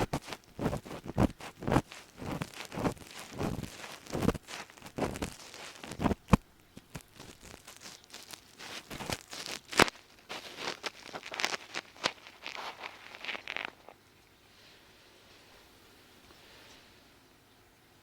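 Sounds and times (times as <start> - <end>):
ear pick scraping in microphone: 0.0 - 13.9.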